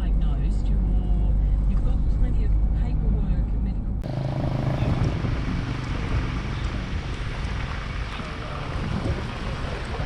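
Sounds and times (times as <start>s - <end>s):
wind buffeting microphone: 4.0s - 10.0s.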